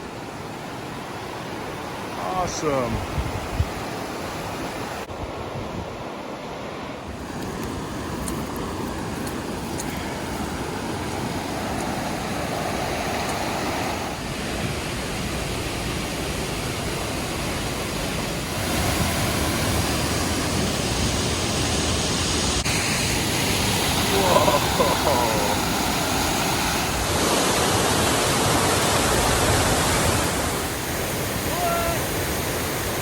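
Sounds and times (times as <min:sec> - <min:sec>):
waterfall pouring: 0:22.6 - 0:30.0.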